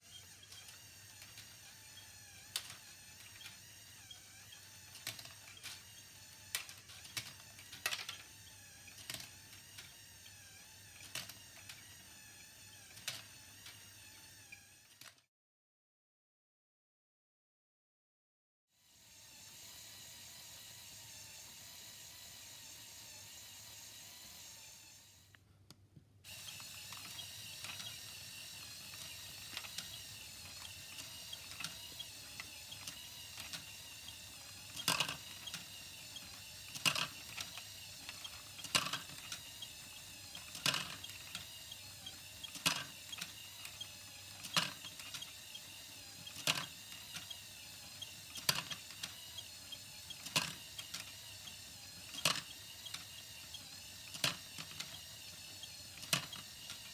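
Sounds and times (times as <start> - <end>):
gear mechanism whirring: 0.0 - 14.8, 26.3 - 56.9.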